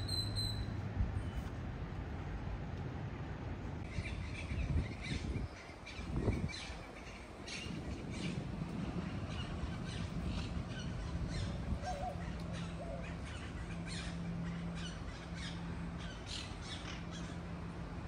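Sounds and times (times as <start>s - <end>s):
birds calling: 3.8s - 18.0s.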